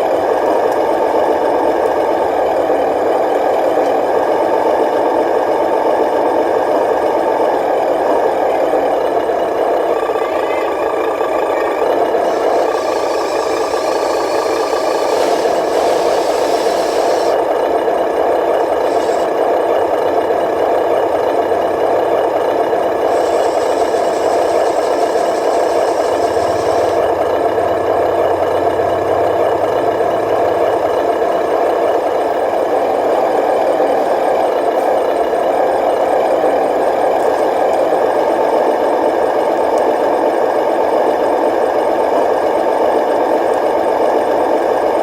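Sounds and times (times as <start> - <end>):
model vehicle motor drone: 8.7 - 17.6, 18.2 - 19.6, 22.6 - 27.5.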